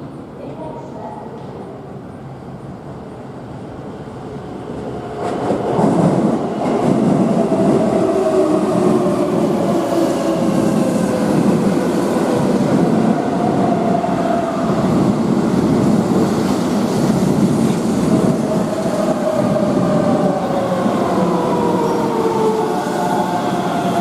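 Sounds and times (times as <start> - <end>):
electric train rumbling: 0.0 - 24.0.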